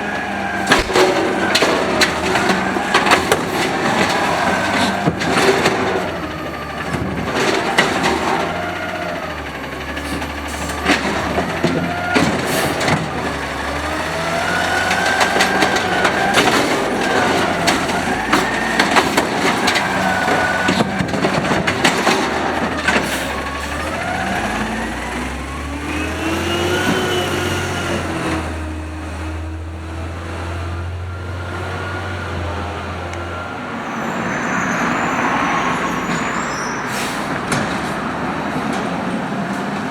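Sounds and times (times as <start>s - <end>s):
metallic bangs and clanks: 0.0s - 9.0s, 9.9s - 24.2s
garbage truck engine revving: 0.0s - 39.9s.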